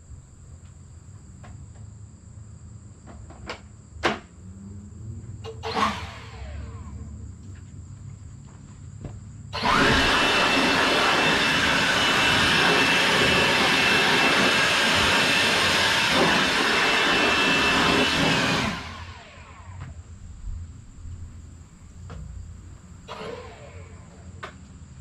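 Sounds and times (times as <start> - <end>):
sawmill running loud: 5.4 - 7.1, 9.6 - 20.1, 22.0 - 25.0
low idle hum: 18.7 - 25.0.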